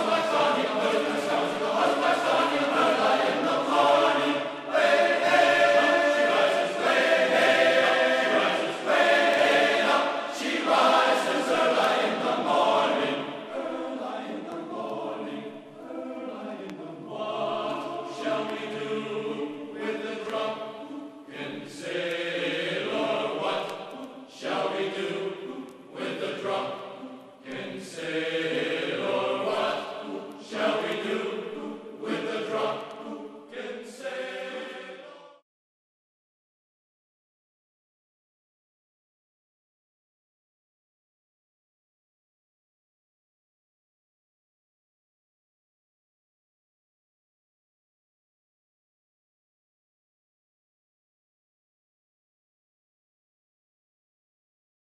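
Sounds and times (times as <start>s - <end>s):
choir-like background music: 0.0s - 35.4s.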